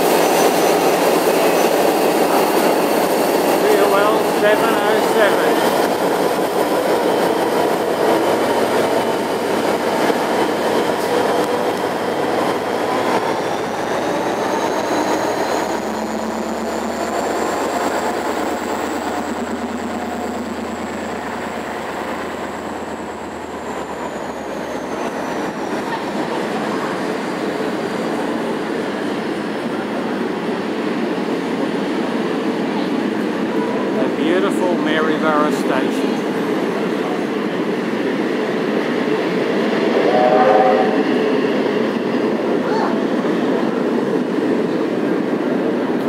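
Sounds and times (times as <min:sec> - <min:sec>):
high wheel squeal: 0:00.0 - 0:02.0
train carriages rumbling on rails: 0:00.0 - 0:46.0.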